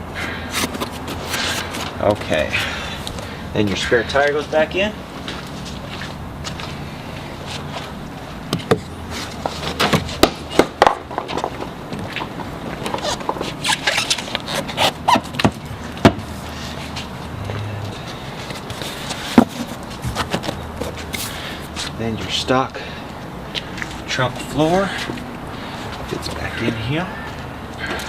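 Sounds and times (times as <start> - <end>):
tire knocking and scraping in trunk: 0.5 - 2.7, 7.5 - 22.0.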